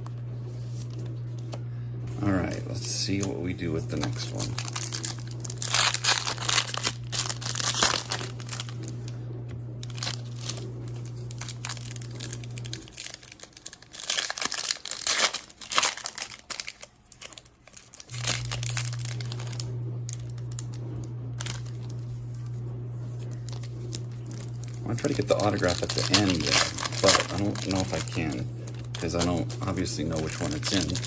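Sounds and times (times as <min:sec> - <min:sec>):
dishwasher humming: 0:00.0 - 0:14.1, 0:18.1 - 0:31.0
foil wrapper crinkling and tearing: 0:02.2 - 0:09.1, 0:09.8 - 0:20.8, 0:21.4 - 0:22.5, 0:23.1 - 0:31.0.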